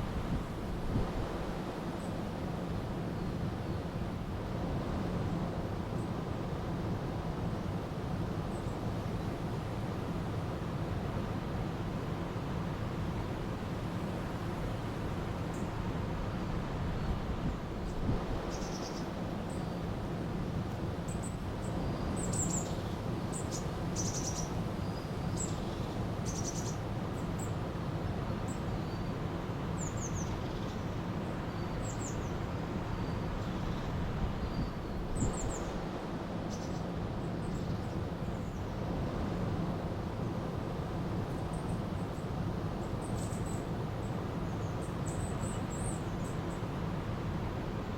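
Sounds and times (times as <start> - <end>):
small birds chirping: 21.1 - 24.5, 25.3 - 26.8.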